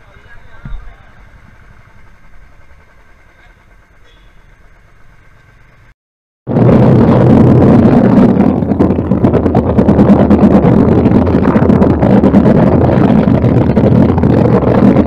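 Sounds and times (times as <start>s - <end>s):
motorcycle engine running low: 0.0s - 5.9s, 6.5s - 15.0s
loud rough noise: 6.5s - 15.0s.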